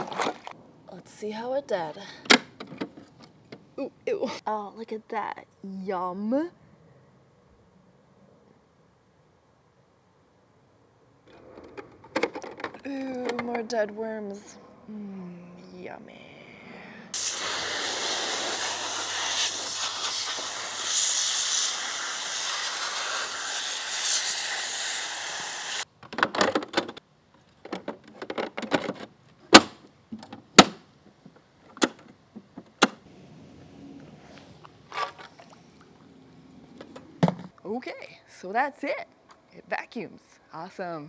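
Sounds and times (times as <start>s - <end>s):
plastic parts clicking and knocking: 11.3s - 13.6s, 26.0s - 27.0s, 27.6s - 30.8s
hose spraying water: 17.2s - 25.9s.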